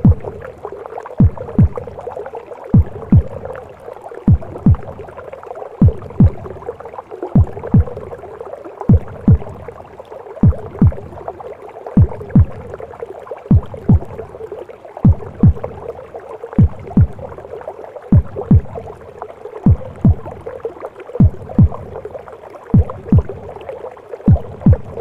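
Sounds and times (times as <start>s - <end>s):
heartbeat thuds: 0.0s - 0.5s, 1.2s - 2.1s, 2.7s - 3.6s, 4.3s - 5.1s, 5.8s - 6.7s, 7.4s - 8.2s, 8.9s - 9.8s, 10.4s - 11.2s, 12.0s - 12.8s, 13.5s - 14.2s, 15.0s - 15.9s, 16.6s - 17.4s, 18.1s - 19.0s, 19.6s - 20.5s, 21.2s - 22.1s, 22.7s - 23.6s, 24.3s - 25.0s.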